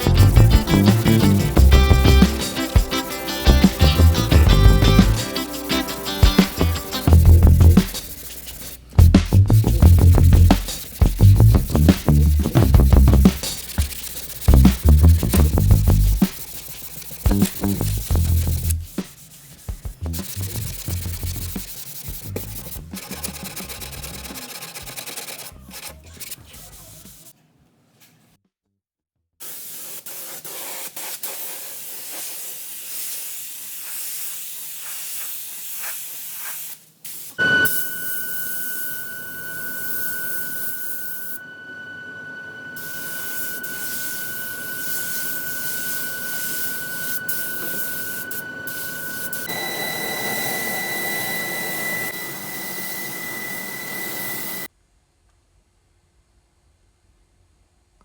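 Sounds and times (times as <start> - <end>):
steady high whistle: 0.0 - 8.7, 37.4 - 54.7
paint spray gun hissing: 0.0 - 9.4, 10.1 - 18.9, 29.4 - 38.9, 42.8 - 49.6.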